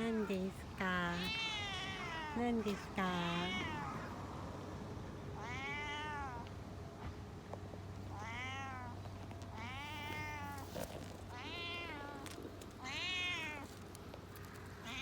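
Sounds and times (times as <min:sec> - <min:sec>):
cat meowing: 0:01.0 - 0:02.4, 0:05.4 - 0:06.4, 0:09.6 - 0:10.6, 0:11.3 - 0:12.2.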